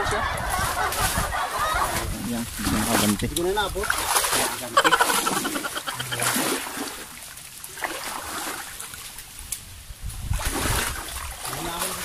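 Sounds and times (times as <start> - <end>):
water splashing: 0.0 - 9.6, 10.2 - 12.0.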